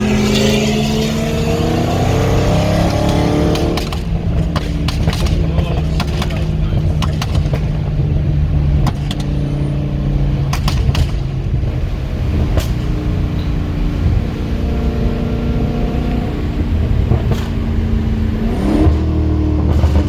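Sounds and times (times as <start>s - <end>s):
loud rough car exhaust: 0.0s - 20.0s
sharp exhaust pops: 1.8s - 14.2s, 16.8s - 18.2s, 18.8s - 20.0s.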